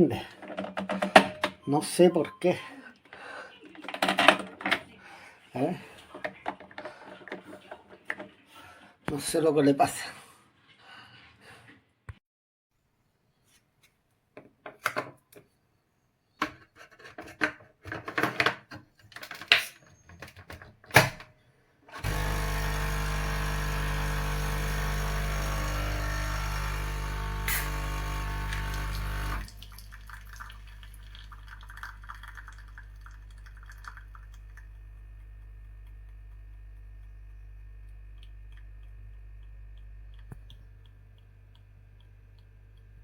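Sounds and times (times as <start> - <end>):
clicks and knocks of coffee machine: 0.4 - 1.6, 3.9 - 4.8, 22.0 - 29.6
coffee machine pump buzzing: 21.9 - 31.0.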